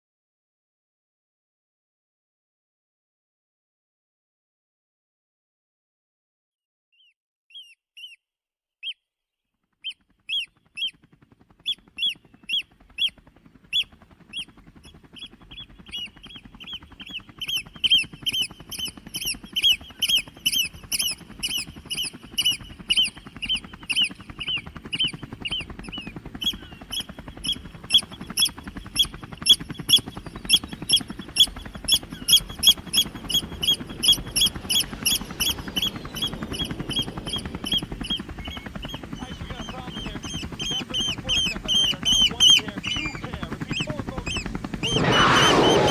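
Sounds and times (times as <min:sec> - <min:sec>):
birds piping alarm calls: 0:07.0 - 0:08.2, 0:09.8 - 0:11.0, 0:11.6 - 0:45.9.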